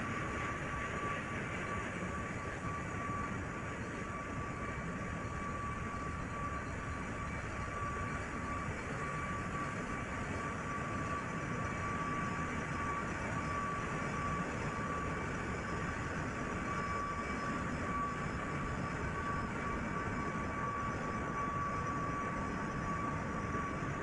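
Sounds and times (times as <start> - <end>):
engine room machinery rumble: 0.0 - 24.0
high machinery whine: 0.0 - 24.0.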